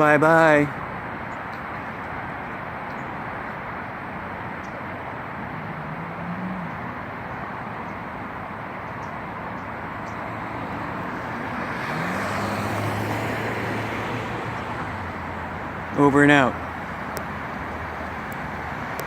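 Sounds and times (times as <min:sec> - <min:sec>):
road traffic rushing: 0:00.0 - 0:19.0
faint low engine drone: 0:00.1 - 0:19.0.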